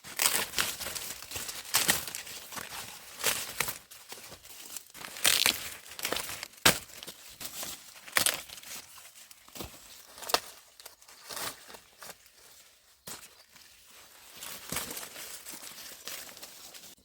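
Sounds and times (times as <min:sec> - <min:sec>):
corn stalks rustling and crackling: 0:00.0 - 0:17.0
stalks snapping: 0:05.1 - 0:07.0, 0:08.1 - 0:08.5.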